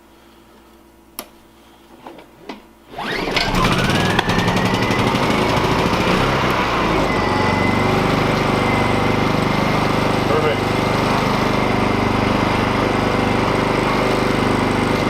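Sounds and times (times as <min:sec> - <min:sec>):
generator engine running: 0:02.9 - 0:15.0.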